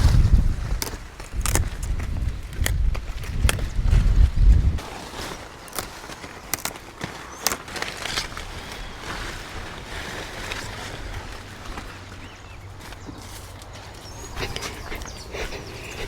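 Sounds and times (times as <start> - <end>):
forest hush: 0.0 - 16.0
faint bird chirps: 14.0 - 16.0.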